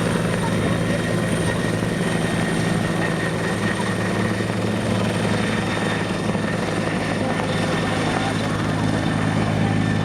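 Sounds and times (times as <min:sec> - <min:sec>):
helicopter rotor and engine drone: 0:00.0 - 0:10.0.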